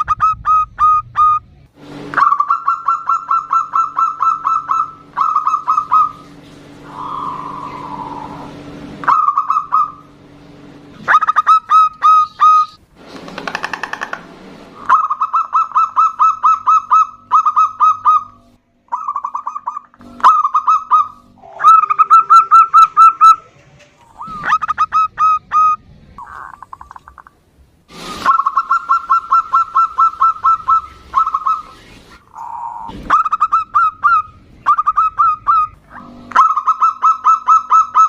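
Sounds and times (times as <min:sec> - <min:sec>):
doves cooing: 0:02.2 - 0:10.2, 0:14.8 - 0:27.3, 0:28.3 - 0:38.0.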